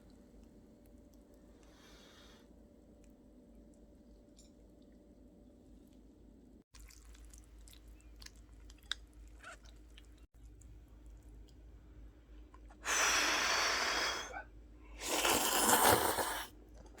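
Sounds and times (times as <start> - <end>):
chewing noodles: 6.8 - 11.6.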